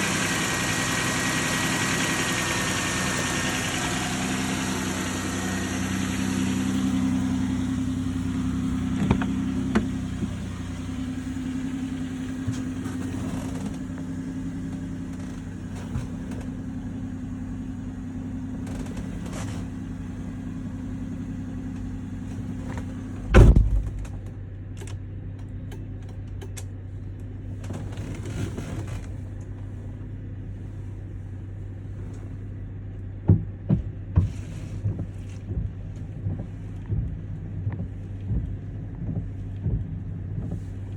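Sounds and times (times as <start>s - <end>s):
car engine idling: 0.0s - 40.9s
loud thump: 23.2s - 24.2s.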